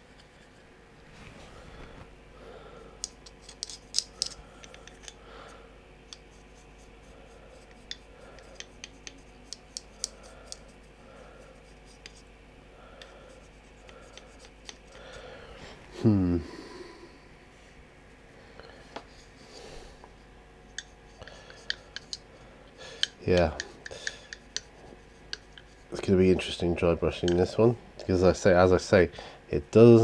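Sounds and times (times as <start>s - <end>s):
dry brush scratching on stone: 24.4s - 27.6s.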